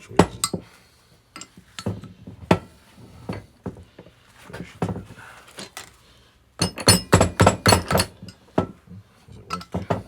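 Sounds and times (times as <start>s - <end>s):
metal knocks and clinks: 6.6s - 8.7s, 9.5s - 10.0s.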